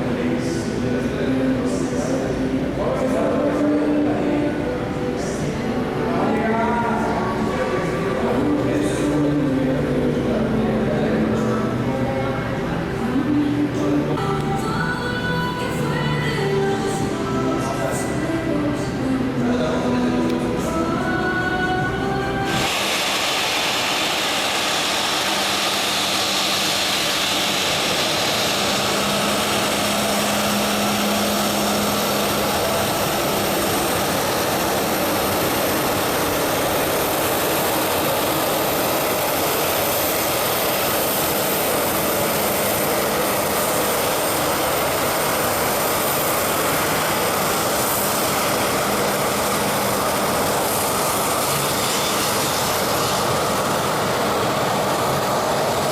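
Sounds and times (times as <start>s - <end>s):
jet engines whining: 0.0s - 55.9s.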